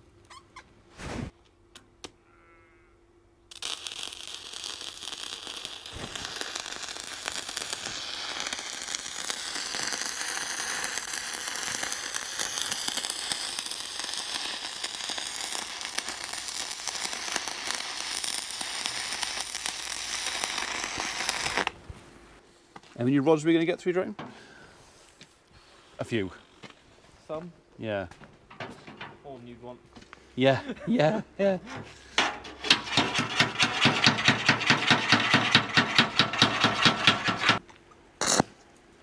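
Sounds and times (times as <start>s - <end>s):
welding arc crackling: 3.5s - 21.8s, 31.7s - 37.6s.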